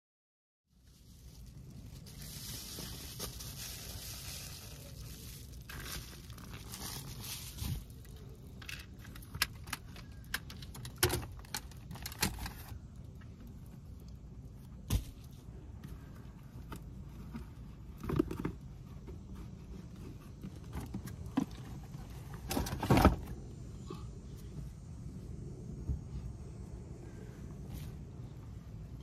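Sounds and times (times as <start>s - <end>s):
rustling and crinkling: 0.7s - 23.4s.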